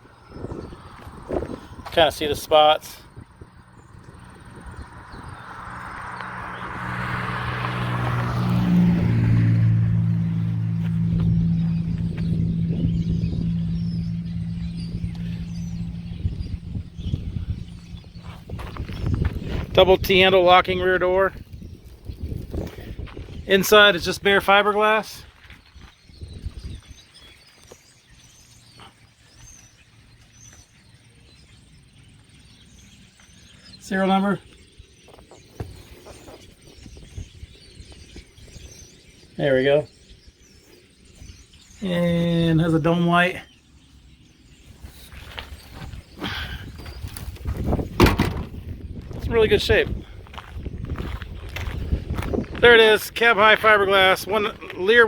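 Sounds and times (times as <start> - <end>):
small birds chirping: 0.0 - 9.0, 9.6 - 55.0
engine approaching: 0.0 - 21.4
steady low hum: 9.8 - 19.6.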